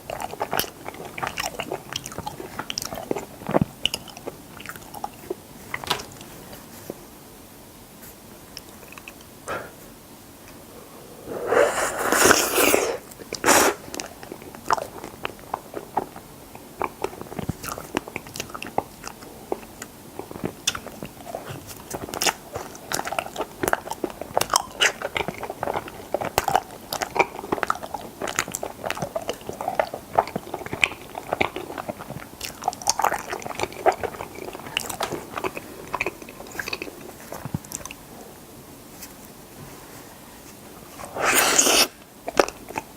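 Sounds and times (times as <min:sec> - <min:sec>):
moist chewing clicks: 0:00.0 - 0:05.9, 0:13.2 - 0:38.0
loud bite into food: 0:11.3 - 0:14.1, 0:41.1 - 0:42.5.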